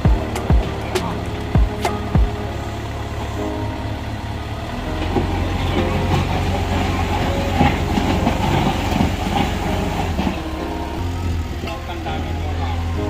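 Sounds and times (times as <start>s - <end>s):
bulldozer diesel engine running: 0.0s - 13.0s
crawler tracks clanking and squeaking: 4.8s - 13.0s.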